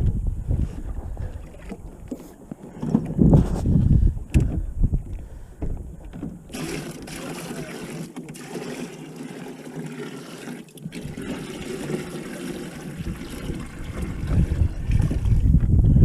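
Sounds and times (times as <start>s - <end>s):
trickling water: 0.8s - 3.2s, 5.8s - 15.6s.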